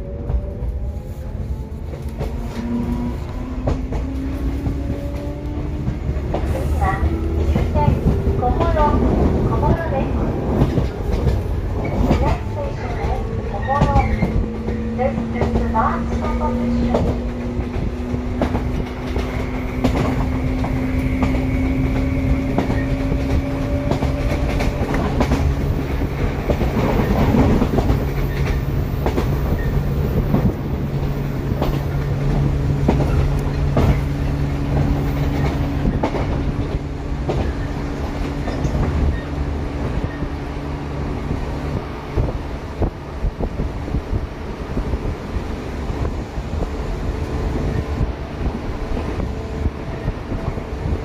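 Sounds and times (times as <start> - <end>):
wheels clickety-clack over rail joints: 0.0 - 51.0.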